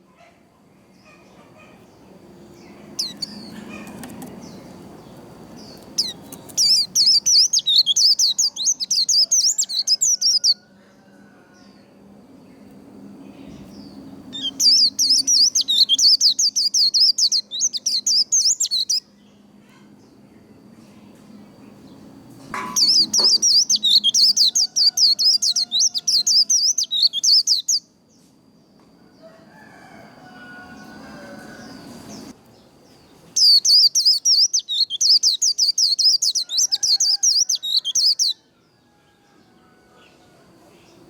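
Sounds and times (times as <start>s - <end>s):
bird singing rapid high notes: 6.0s - 10.6s, 14.4s - 19.0s, 22.8s - 27.8s, 33.4s - 38.2s.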